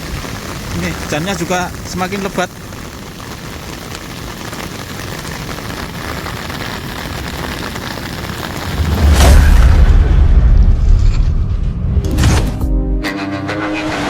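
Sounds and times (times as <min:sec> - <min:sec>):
heavy rain hissing: 0:00.0 - 0:10.8
deep boom: 0:08.6 - 0:12.9.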